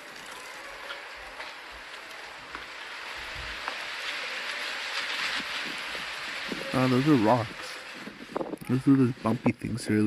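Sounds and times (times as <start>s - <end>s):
wind rushing over microphone: 5.3s - 10.0s.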